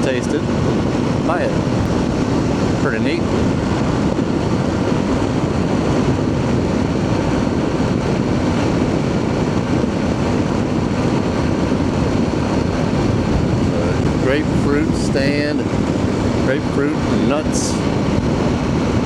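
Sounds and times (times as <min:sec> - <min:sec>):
wind on microphone: 0:00.0 - 0:19.0
motorcycle engine cruising: 0:12.6 - 0:16.9.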